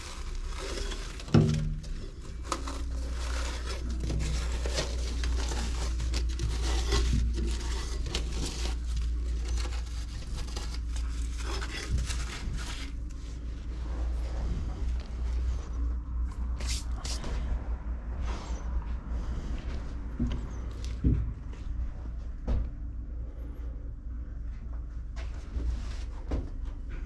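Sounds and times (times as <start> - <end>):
scraping and rustling: 0.0 - 17.5
low hum: 0.0 - 27.0.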